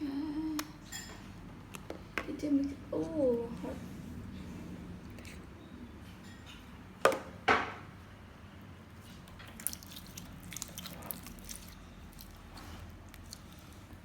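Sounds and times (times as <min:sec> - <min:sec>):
slime squelching: 0:09.4 - 0:14.0.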